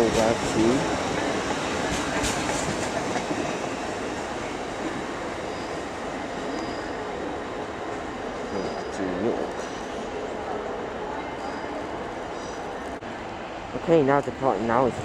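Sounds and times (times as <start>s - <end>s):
train engines and wheels: 0.0s - 15.0s.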